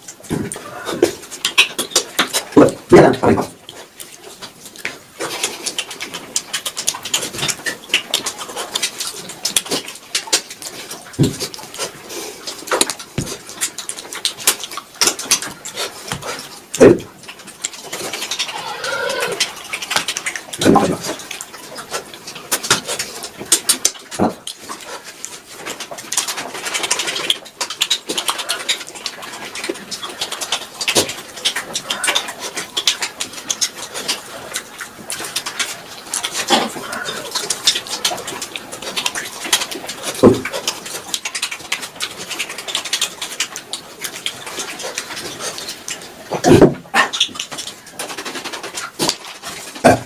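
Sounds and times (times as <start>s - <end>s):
person chewing and smacking: 0.0s - 50.0s.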